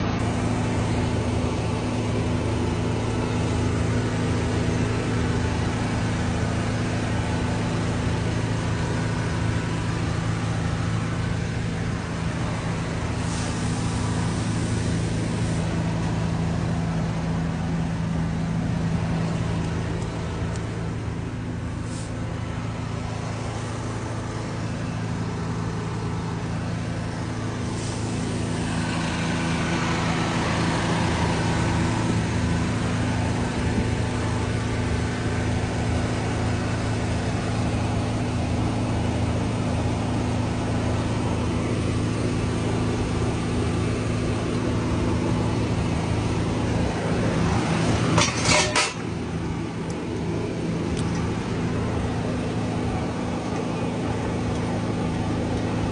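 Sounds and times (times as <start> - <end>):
diesel truck engine running: 0.0 - 55.9
hiss: 12.2 - 17.2, 21.7 - 24.7, 27.3 - 32.2.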